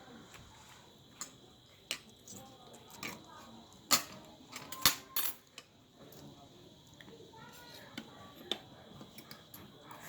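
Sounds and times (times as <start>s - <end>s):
cutlery clinking against a bowl: 3.9s - 5.8s.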